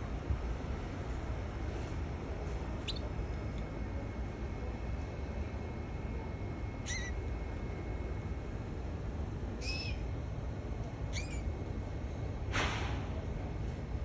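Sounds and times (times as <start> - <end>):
low background hum: 0.0 - 14.0
canary chirps: 2.8 - 3.1, 6.8 - 7.2, 9.6 - 10.0, 11.1 - 11.5.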